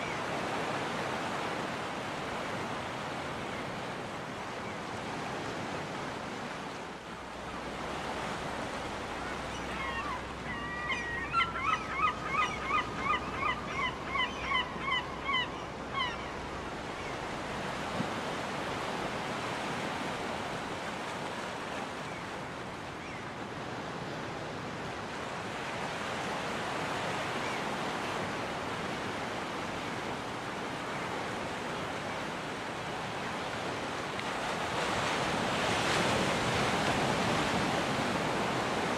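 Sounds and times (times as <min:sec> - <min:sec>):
gull calling: 0:09.2 - 0:16.4.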